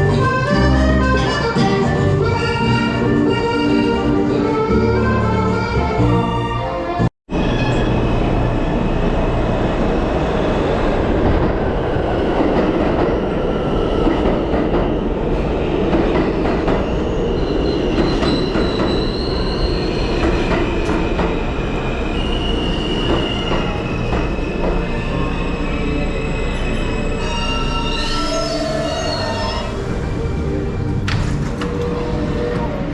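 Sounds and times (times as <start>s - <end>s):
subway train rumbling on rails: 0.0s - 32.9s
wheels squealing: 16.8s - 32.9s.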